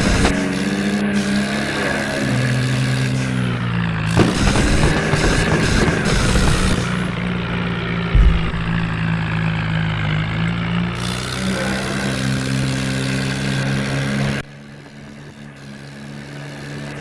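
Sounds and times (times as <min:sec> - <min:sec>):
tractor diesel engine running: 0:00.0 - 0:16.3.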